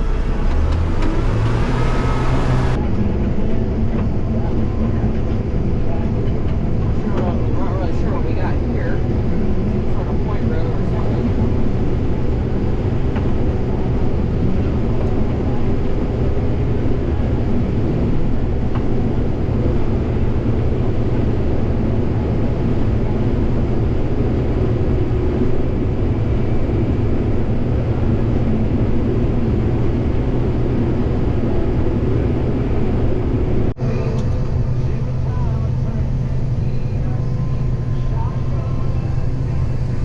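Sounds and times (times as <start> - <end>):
combine engine droning: 0.0 - 40.0.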